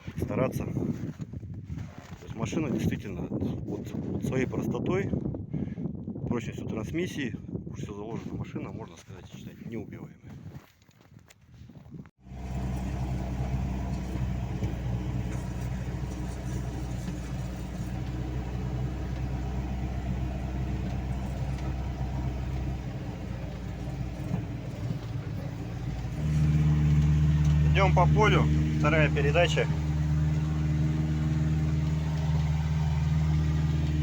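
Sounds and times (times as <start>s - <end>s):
petrol engine running: 12.2s - 34.0s.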